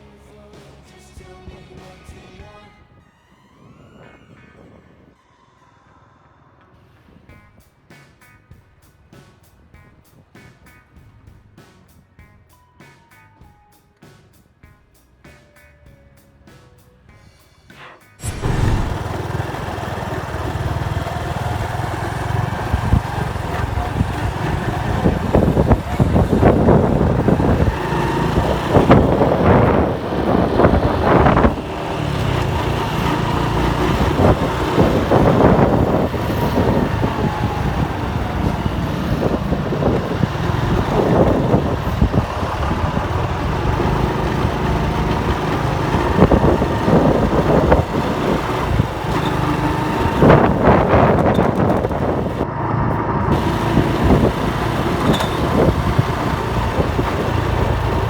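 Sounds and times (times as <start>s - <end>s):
wind noise on microphone: 1.2s - 5.2s, 18.2s - 58.0s
motorcycle engine running: 18.2s - 58.0s.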